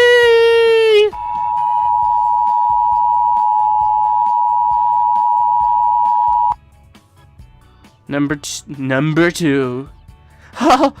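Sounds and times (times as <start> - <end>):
loud electronic beep: 1.1 - 6.6.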